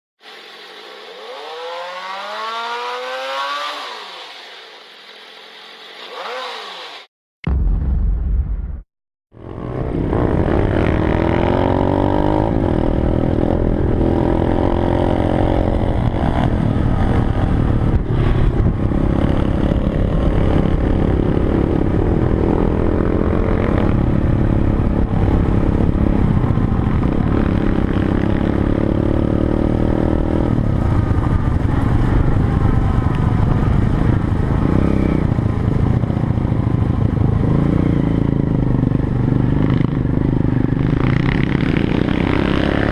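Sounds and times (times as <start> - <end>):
pit bike engine revving: 1.0 - 4.6, 5.9 - 7.1, 9.4 - 42.9.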